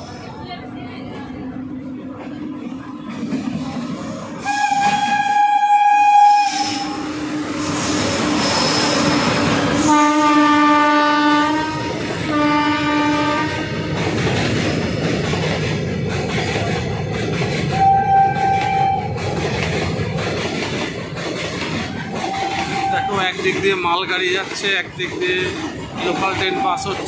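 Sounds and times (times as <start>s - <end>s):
train wheels on rails: 0.0s - 27.0s
high-pitched train horn: 4.4s - 14.0s, 17.7s - 19.1s, 22.2s - 23.2s
low-pitched train horn blasts: 4.4s - 14.0s, 17.7s - 19.2s, 22.2s - 23.2s.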